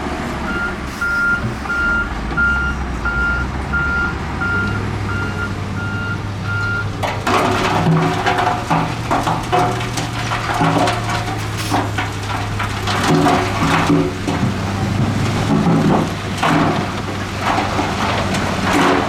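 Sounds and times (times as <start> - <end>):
diesel engine hum: 0.0 - 19.0
reversing alarm beeping: 0.5 - 6.9
gravel and rock crunching: 6.1 - 19.0.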